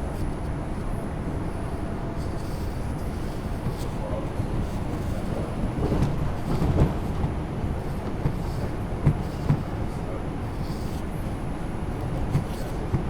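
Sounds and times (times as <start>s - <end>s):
subway car rumble: 0.0s - 13.0s
knocks: 8.1s - 9.8s.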